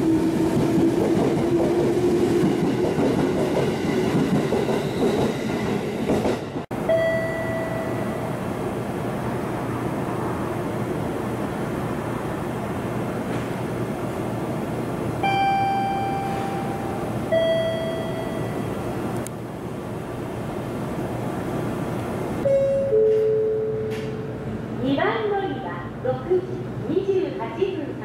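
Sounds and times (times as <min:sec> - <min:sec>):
train rumbling: 0:00.0 - 0:28.0
descending two-note station chime: 0:06.8 - 0:08.4, 0:15.3 - 0:18.8, 0:22.5 - 0:23.9
long level tones: 0:06.8 - 0:08.4, 0:15.2 - 0:18.9.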